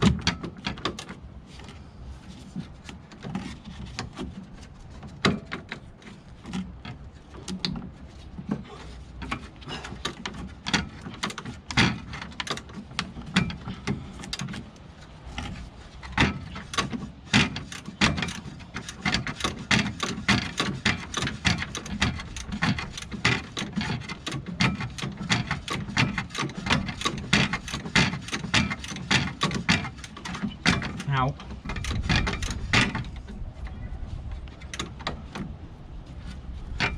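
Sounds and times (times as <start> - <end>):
hand tools clicking on metal: 15.4 - 33.3.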